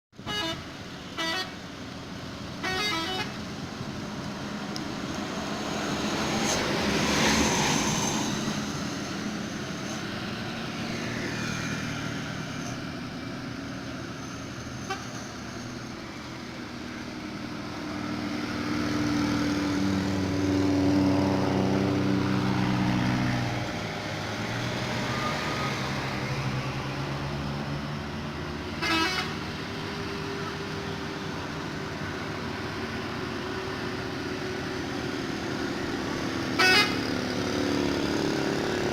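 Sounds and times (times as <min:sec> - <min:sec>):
truck engines under load: 0:00.2 - 0:38.9
short horn toots: 0:01.2 - 0:01.6, 0:02.6 - 0:03.4, 0:14.8 - 0:15.4, 0:28.8 - 0:29.4.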